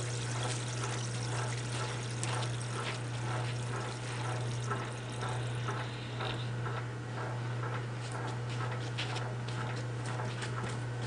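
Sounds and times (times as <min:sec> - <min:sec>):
hose water pouring into tub: 0:00.0 - 0:05.6.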